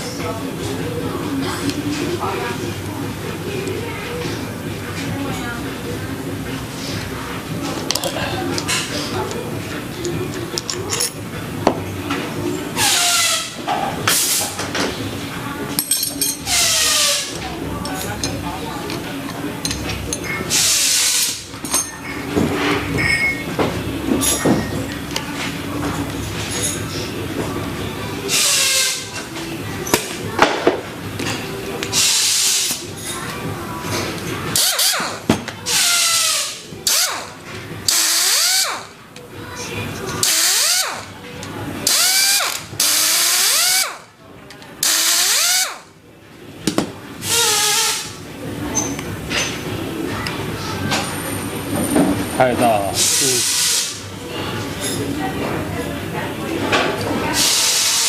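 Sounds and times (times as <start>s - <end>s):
metal parts clinking: 10.5s - 11.2s, 15.7s - 16.9s
pneumatic tool air hissing: 20.5s - 21.4s, 28.3s - 29.0s, 31.9s - 32.8s, 34.6s - 37.3s, 37.9s - 38.9s, 40.2s - 41.0s, 41.9s - 44.0s, 44.8s - 45.8s, 47.2s - 48.1s, 53.0s - 54.0s, 57.4s - 58.0s
exhaust air hiss: 53.0s - 54.0s.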